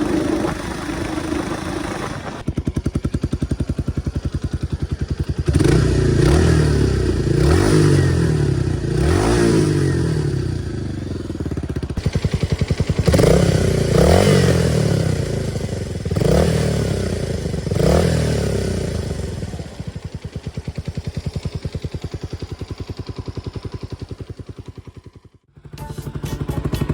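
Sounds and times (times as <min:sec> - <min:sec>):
motorcycle engine revving and idling: 0:00.0 - 0:26.9.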